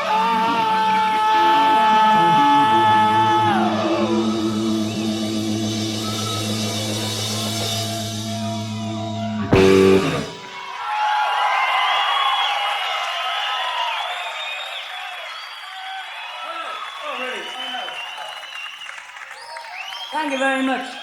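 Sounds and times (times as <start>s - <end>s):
hard rock band playing: 0.0s - 10.6s
audience cheering and applause: 0.0s - 21.0s.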